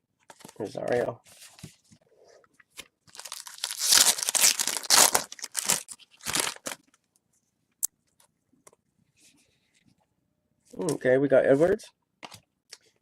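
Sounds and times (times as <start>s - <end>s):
wrapper tearing and crinkling: 3.1s - 6.9s.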